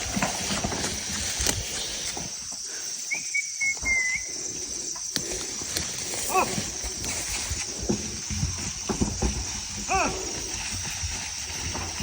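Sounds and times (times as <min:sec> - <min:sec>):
insects chirring: 0:00.0 - 0:12.0
whistled bird call: 0:03.1 - 0:04.4.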